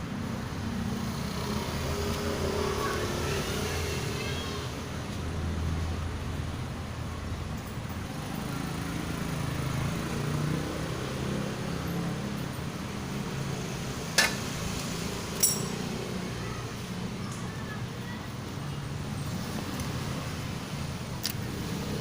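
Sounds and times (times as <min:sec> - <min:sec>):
metal parts clinking: 0:15.4 - 0:15.8.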